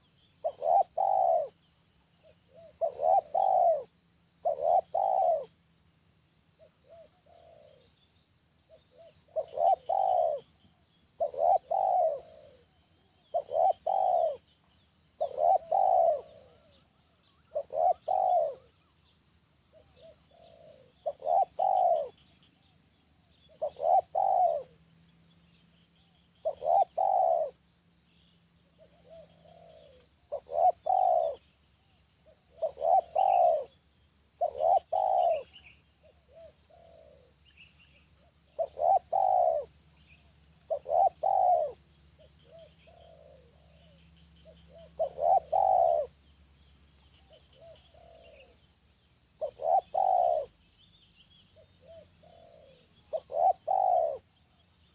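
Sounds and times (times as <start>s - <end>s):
dove cooing: 0.0s - 5.6s, 6.6s - 8.0s, 8.6s - 18.9s, 19.7s - 24.8s, 25.5s - 27.6s, 28.2s - 50.6s, 51.5s - 54.9s.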